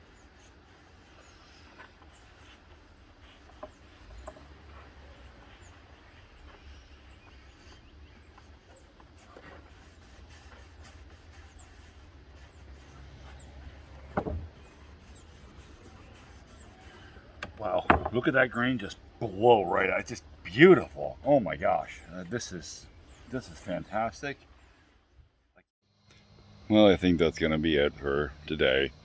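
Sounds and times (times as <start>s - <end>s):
faint bird chirps: 0.0s - 10.6s.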